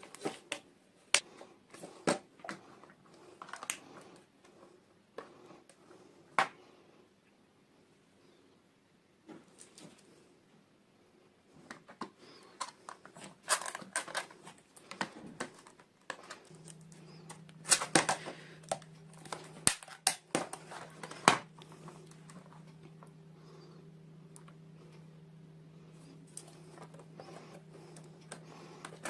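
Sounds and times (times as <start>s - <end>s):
faint low hum: 0.0s - 29.0s
packaging crinkling: 3.4s - 4.0s, 12.3s - 23.0s.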